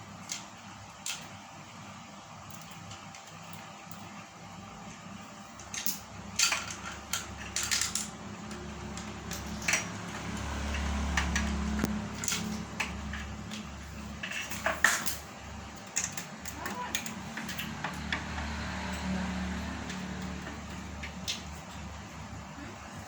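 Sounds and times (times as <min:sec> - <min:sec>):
metal parts clinking and knocking: 0:05.6 - 0:10.0.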